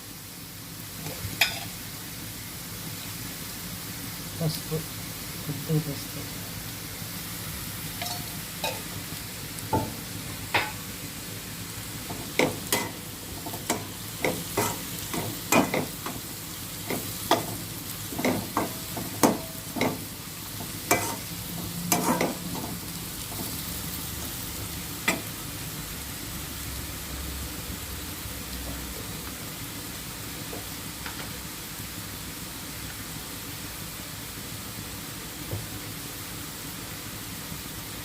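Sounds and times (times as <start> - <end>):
food sizzling in oil: 0.0 - 38.0
spatula scraping a pan: 13.5 - 14.9, 20.6 - 22.6.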